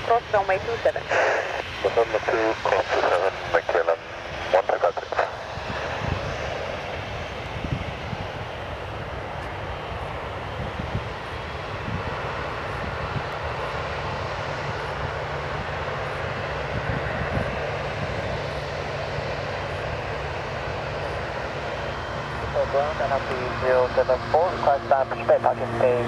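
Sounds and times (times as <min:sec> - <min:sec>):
jet engines running: 0:00.0 - 0:26.0
wind buffeting microphone: 0:05.0 - 0:24.1.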